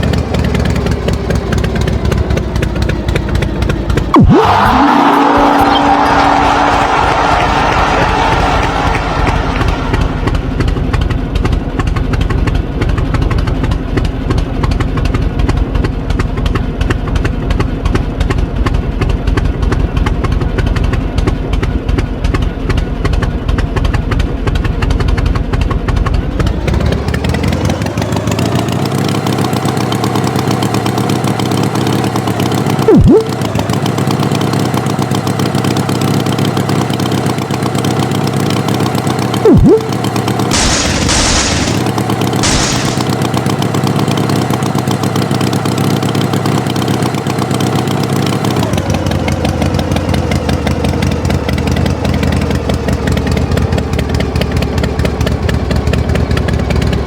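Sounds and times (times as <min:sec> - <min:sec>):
tractor engine chugging: 0:00.0 - 0:06.7, 0:08.0 - 0:57.0
loud tone: 0:04.1 - 0:10.6, 0:32.9 - 0:33.4, 0:39.4 - 0:43.2.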